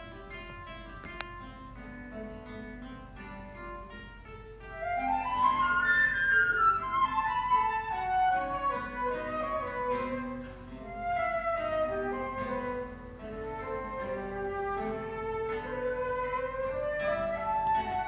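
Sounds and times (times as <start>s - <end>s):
guitar plucked notes: 0.0s - 18.0s
flute melody: 4.7s - 18.0s.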